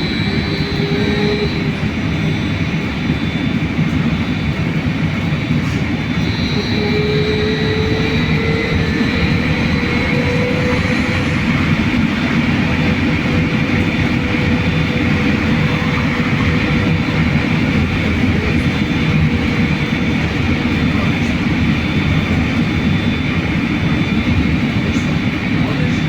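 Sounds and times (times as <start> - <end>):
faint thin whining tones: 0.0 - 26.0
trolleybus rumble: 0.0 - 26.0.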